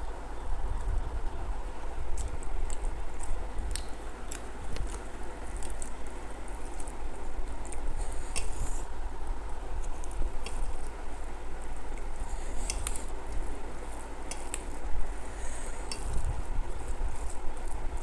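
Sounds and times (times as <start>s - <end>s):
food being chewed: 2.1s - 8.6s.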